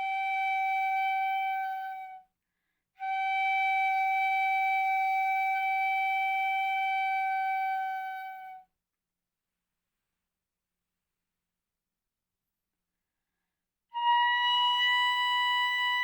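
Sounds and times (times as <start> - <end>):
bamboo flute long note: 3.0 - 8.6, 13.9 - 16.0.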